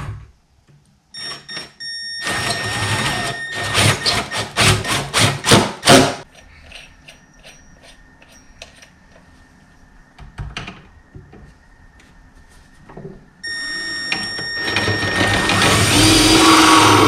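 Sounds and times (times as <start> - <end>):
power drill cutting wood: 2.2 - 5.3, 14.6 - 17.0.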